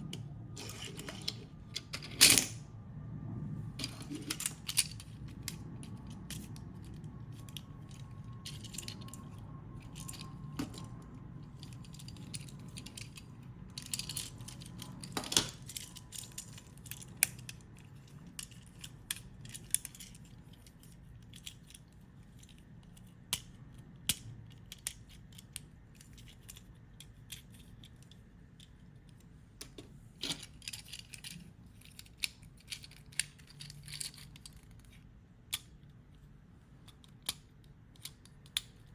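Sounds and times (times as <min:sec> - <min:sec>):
faint low hum: 0:00.0 - 0:38.9
plastic toy parts clicking: 0:06.3 - 0:35.9, 0:36.8 - 0:38.9.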